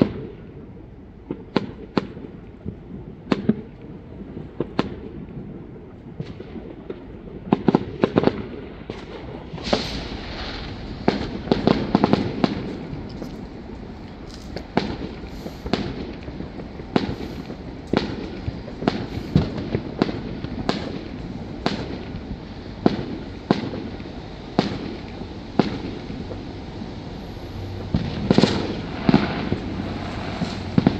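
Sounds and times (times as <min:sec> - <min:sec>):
distant fireworks rumble: 0:00.0 - 0:30.9
firework bangs: 0:01.2 - 0:30.9.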